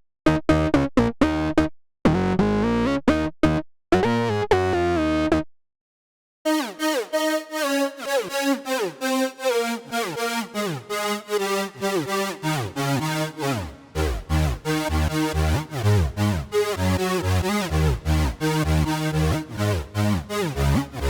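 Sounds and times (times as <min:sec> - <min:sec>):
plucked synth notes falling in pitch: 0:00.2 - 0:05.4, 0:12.5 - 0:21.0
held synthesizer chords: 0:06.5 - 0:21.0
synthesizer chord stabs: 0:06.5 - 0:21.0.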